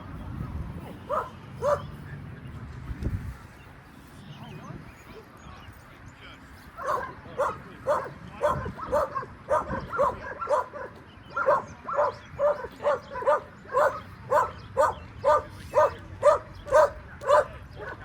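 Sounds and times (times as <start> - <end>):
dog barking: 0.8 - 1.9, 6.8 - 18.0.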